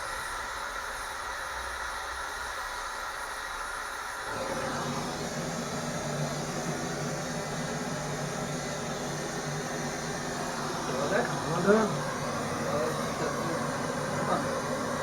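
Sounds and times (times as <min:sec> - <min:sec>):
cutting torch hissing: 0:03.6 - 0:15.0.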